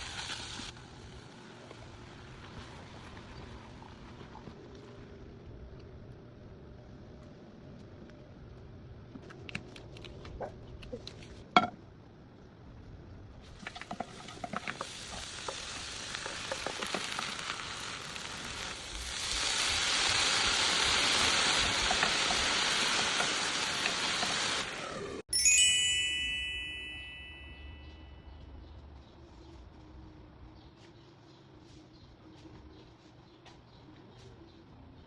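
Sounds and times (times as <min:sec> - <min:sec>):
food sizzling in a pan: 0:00.0 - 0:03.8, 0:13.5 - 0:25.2.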